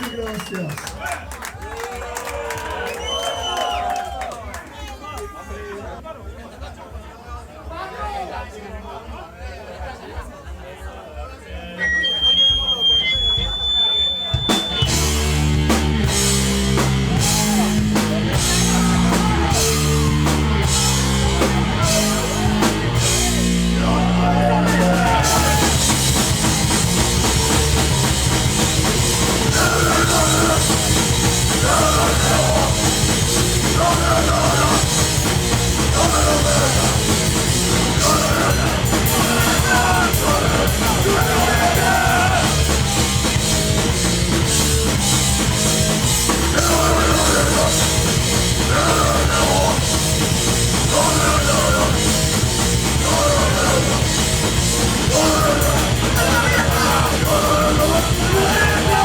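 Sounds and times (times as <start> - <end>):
distorted guitars: 11.8 - 59.0
pounding drum kit: 13.2 - 59.0
shouted vocals: 17.1 - 26.2, 28.9 - 43.0, 46.4 - 59.0.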